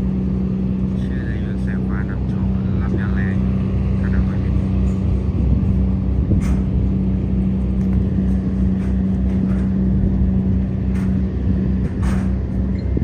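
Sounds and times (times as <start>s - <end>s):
boat diesel engine drone: 0.0s - 13.0s.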